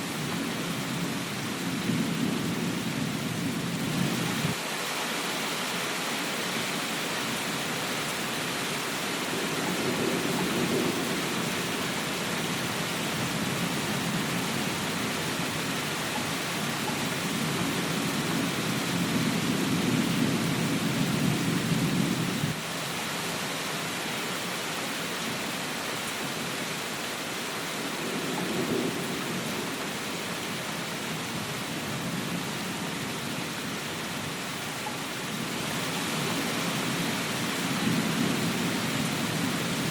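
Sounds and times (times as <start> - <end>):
rain hiss: 0.0 - 39.9
thunder rumbling: 9.1 - 22.6, 27.9 - 34.4, 35.3 - 39.9.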